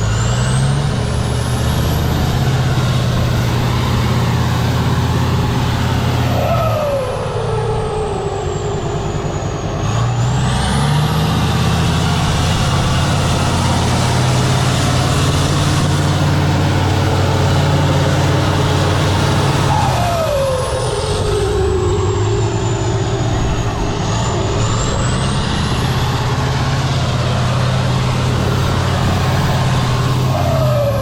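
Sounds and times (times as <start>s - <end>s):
diesel truck engine revving: 0.0s - 31.0s
high whistle: 19.6s - 23.7s.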